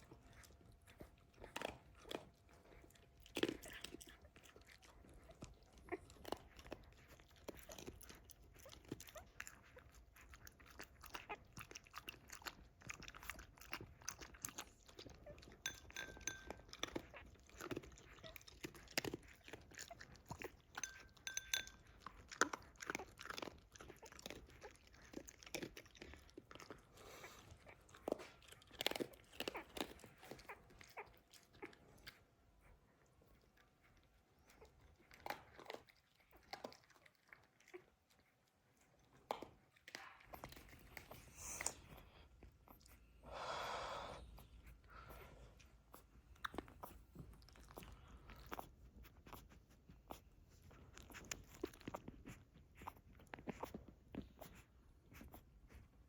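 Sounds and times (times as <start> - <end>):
dog crunching food: 0.0 - 32.2, 34.4 - 38.3, 50.9 - 54.6.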